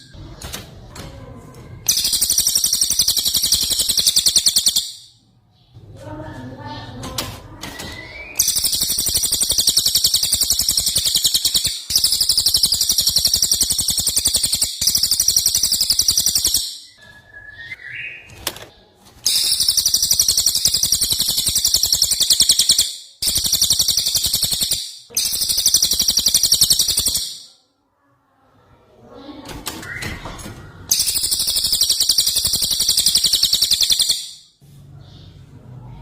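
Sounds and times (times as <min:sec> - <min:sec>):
bird singing rapid shrill notes: 0:01.9 - 0:05.2, 0:07.8 - 0:18.3, 0:19.2 - 0:27.6, 0:30.9 - 0:34.6.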